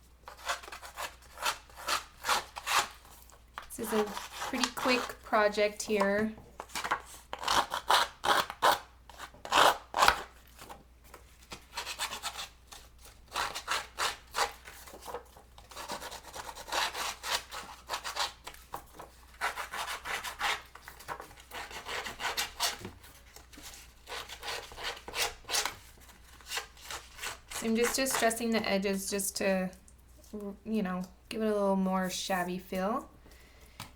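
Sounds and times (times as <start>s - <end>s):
tool rasping along paper edge: 0.3s - 3.1s, 3.8s - 5.2s, 23.9s - 25.8s.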